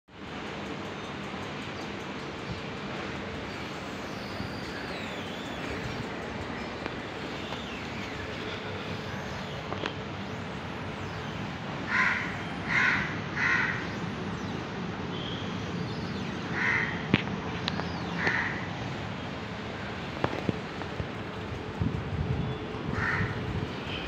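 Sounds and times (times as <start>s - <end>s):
steady background noise: 0.1s - 24.0s
bird calling: 11.0s - 14.0s.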